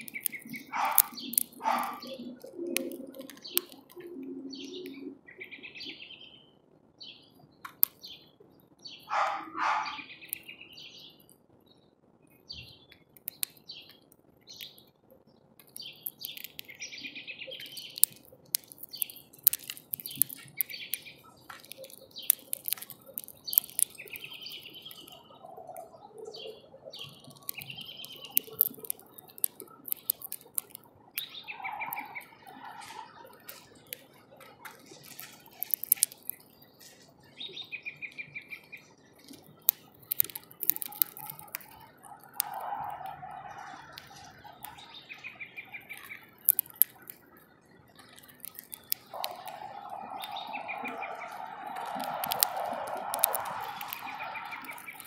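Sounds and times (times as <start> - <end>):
sharp clicks and taps: 0.0 - 5.0, 7.6 - 8.1, 12.9 - 14.8, 15.6 - 16.9, 17.6 - 25.9, 27.0 - 37.1, 39.2 - 43.1, 45.9 - 47.4, 48.0 - 55.0
songbirds chirping and twittering: 0.0 - 55.0.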